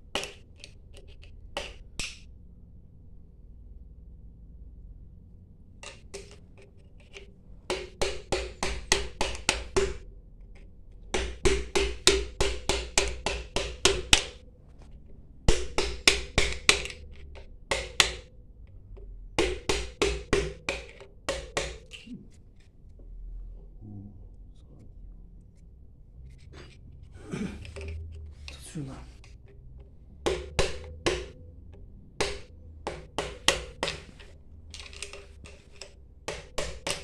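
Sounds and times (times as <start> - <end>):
hammer tapping on metal: 7.7 - 10.0, 11.0 - 14.4, 15.4 - 18.3, 19.4 - 22.0, 29.2 - 37.0.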